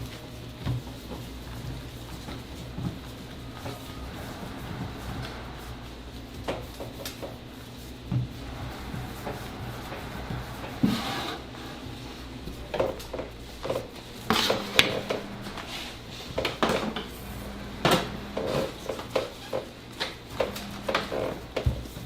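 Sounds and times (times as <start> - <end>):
low steady hum: 0.0 - 19.2.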